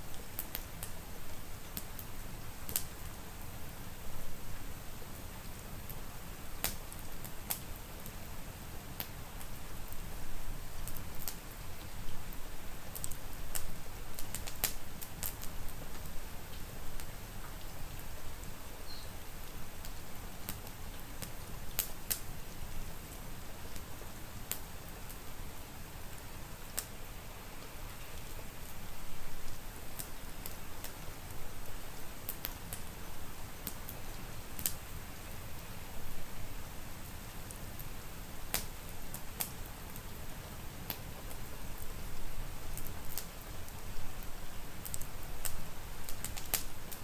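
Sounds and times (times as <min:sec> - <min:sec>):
rain hissing: 0:00.0 - 0:47.0
wood fire crackling and popping: 0:00.1 - 0:03.2, 0:06.6 - 0:08.3, 0:09.0 - 0:10.1, 0:10.7 - 0:18.5, 0:19.4 - 0:25.2, 0:26.1 - 0:27.0, 0:29.4 - 0:35.7, 0:37.0 - 0:40.2, 0:40.8 - 0:47.0.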